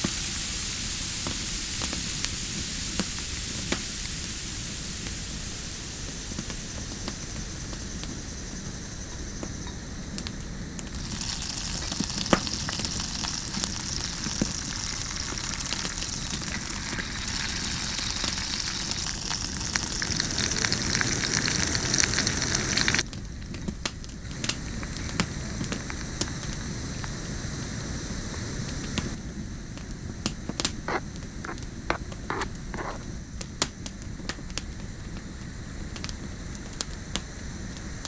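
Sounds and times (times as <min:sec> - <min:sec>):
fire crackling and popping: 0:00.0 - 0:38.0
food sizzling: 0:00.0 - 0:38.0.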